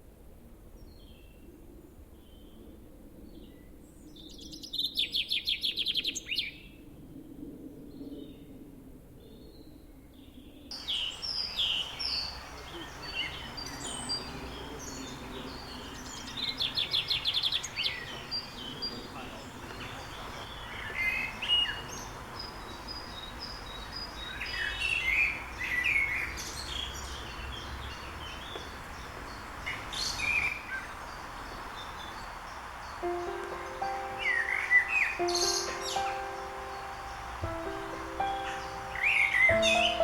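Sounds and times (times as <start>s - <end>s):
background hiss: 10.7s - 40.0s
birds chirping: 10.7s - 40.0s.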